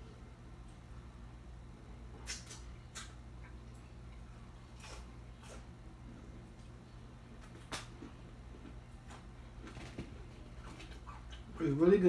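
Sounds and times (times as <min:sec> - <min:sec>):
steady low hum: 0:00.0 - 0:12.0
faint chewing and mouth sounds: 0:02.2 - 0:11.8.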